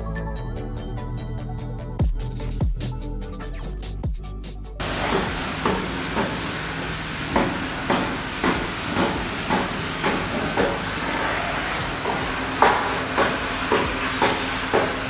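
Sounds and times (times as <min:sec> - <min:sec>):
compressed air hissing: 0:04.8 - 0:15.0.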